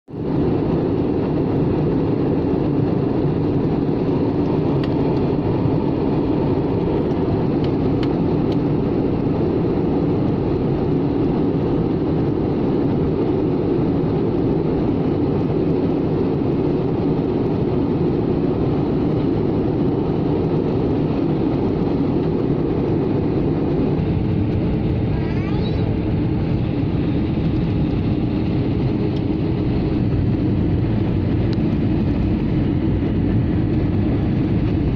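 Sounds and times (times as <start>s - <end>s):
jet airliner roar: 0.1s - 34.9s.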